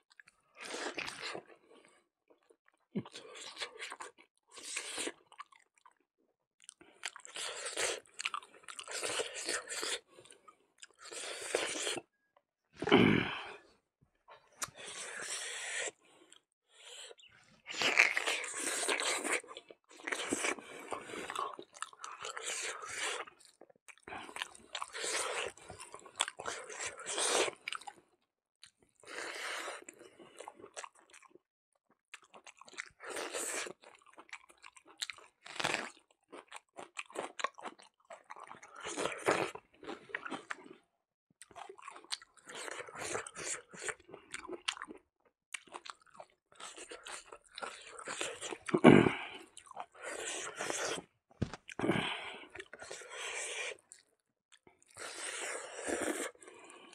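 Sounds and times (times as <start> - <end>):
chewing and crunching food: 0.0 - 56.9.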